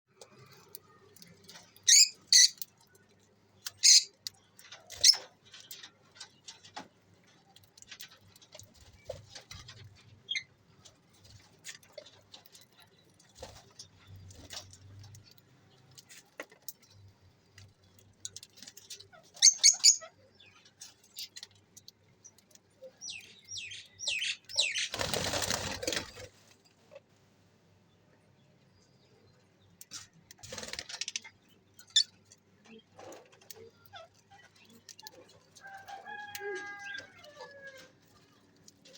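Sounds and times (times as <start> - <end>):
wings flapping: 24.7 - 26.6, 30.4 - 31.2.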